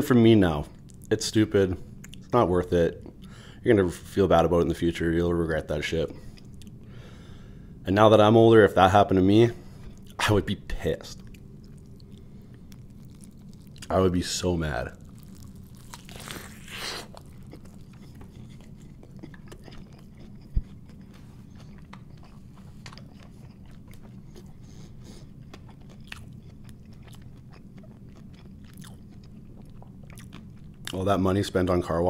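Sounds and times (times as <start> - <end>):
steady low hum: 0.0 - 32.0
biting and chewing burger: 11.1 - 31.0.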